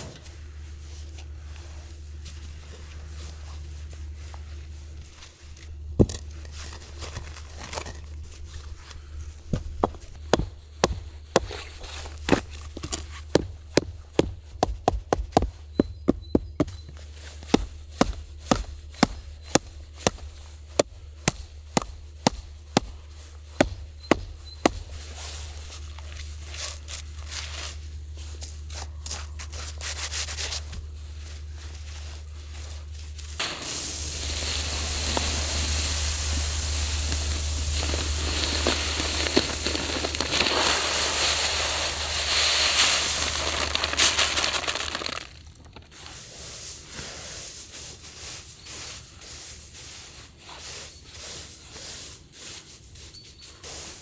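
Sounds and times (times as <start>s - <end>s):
rubber mallet knocking stones: 9.5s - 16.7s, 17.5s - 23.0s
scraping and rustling: 23.0s - 46.8s.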